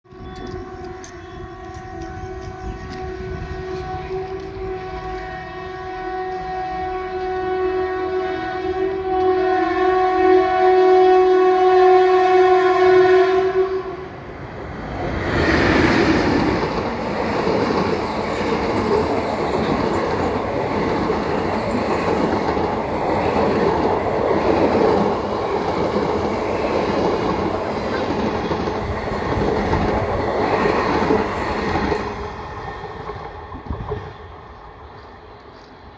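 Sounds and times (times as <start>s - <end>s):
train horn long blast: 0.1s - 14.2s
train wheels clattering on rails: 15.2s - 35.8s.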